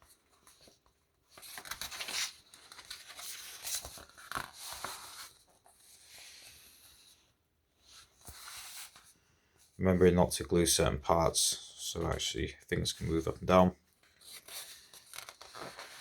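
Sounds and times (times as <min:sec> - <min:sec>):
magazine pages rustling: 0:00.0 - 0:07.1, 0:12.9 - 0:16.0.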